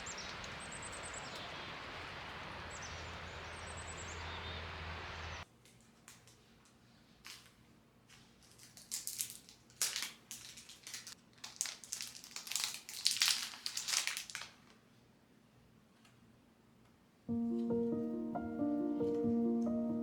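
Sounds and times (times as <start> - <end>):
crunching and crinkling: 5.6 - 14.8.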